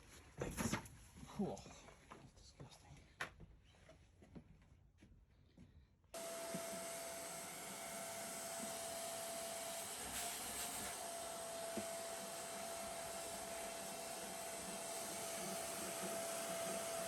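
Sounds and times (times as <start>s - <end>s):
vacuum cleaner running: 6.2s - 17.0s.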